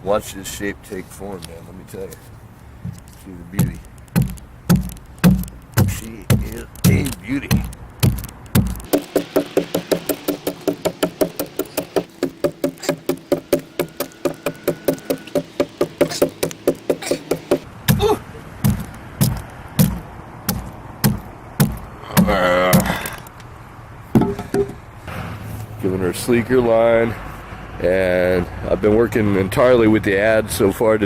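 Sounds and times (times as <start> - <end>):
adze chopping wood: 3.6 - 23.2.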